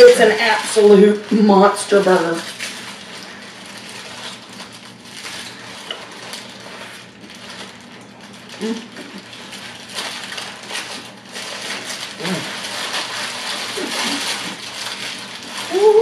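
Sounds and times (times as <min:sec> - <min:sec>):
paper wrappers crinkling: 0:00.0 - 0:16.0
person humming: 0:08.6 - 0:09.2, 0:12.2 - 0:12.6, 0:15.6 - 0:16.0.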